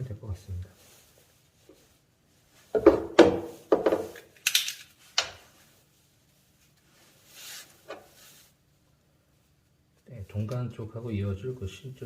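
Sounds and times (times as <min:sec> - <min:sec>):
soft hiss: 0:00.0 - 0:02.8, 0:03.5 - 0:12.0
knocks and rubbing of pipe fittings: 0:02.6 - 0:04.4, 0:07.5 - 0:08.4.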